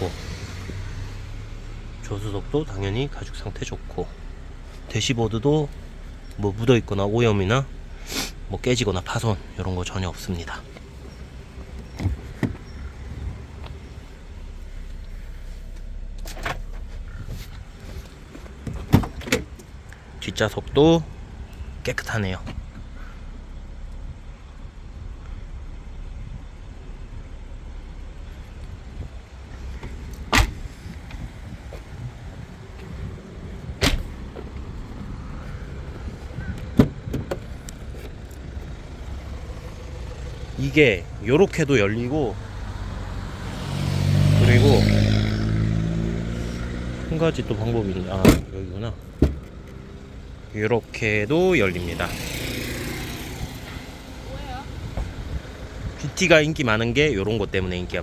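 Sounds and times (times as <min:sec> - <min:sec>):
car doors shutting: 0:00.0 - 0:23.2, 0:28.3 - 0:56.1
low steady rumble: 0:00.0 - 0:43.6
car door thump: 0:11.8 - 0:12.9, 0:18.3 - 0:19.7, 0:29.7 - 0:31.9, 0:33.6 - 0:35.2, 0:36.4 - 0:38.2, 0:48.2 - 0:49.8
door latch clicks: 0:30.2 - 0:30.6, 0:33.8 - 0:34.1.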